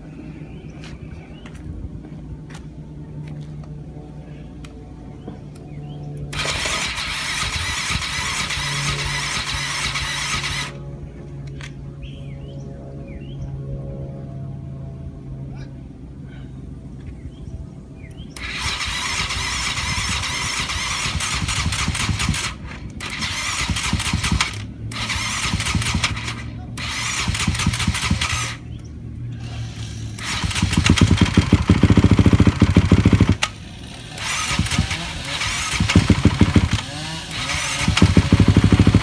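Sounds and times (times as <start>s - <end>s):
motorcycle engine running loudly: 5.2s - 11.2s, 18.4s - 39.0s
motorcycle engine cranking: 6.2s - 10.8s, 18.4s - 28.7s, 29.8s - 39.0s.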